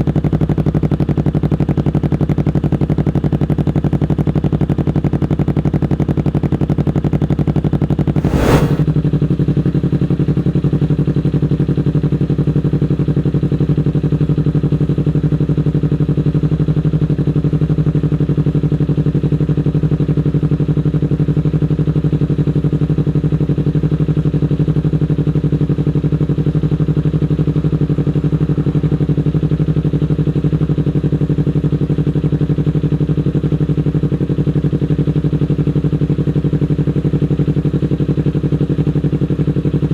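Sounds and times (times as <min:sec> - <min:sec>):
brief sharp sound: 0:08.2 - 0:08.9.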